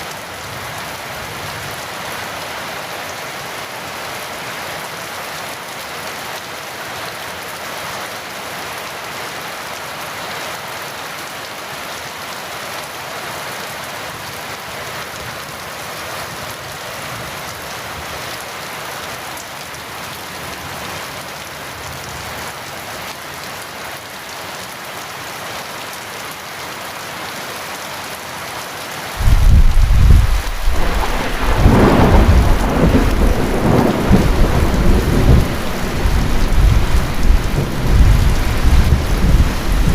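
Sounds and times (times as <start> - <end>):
heavy rain falling: 0.0 - 39.9
thunder clap and rumble: 29.2 - 39.9.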